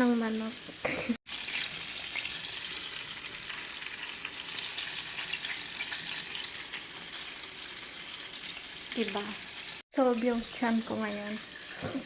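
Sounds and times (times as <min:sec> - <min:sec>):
chicken sizzling in hot oil: 0:00.0 - 0:12.0
oil crackling and popping: 0:00.7 - 0:09.8.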